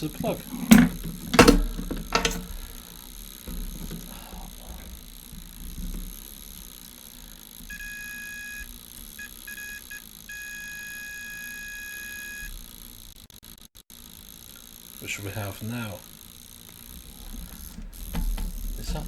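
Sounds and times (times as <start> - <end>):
multimeter continuity beeping: 7.6 - 12.6.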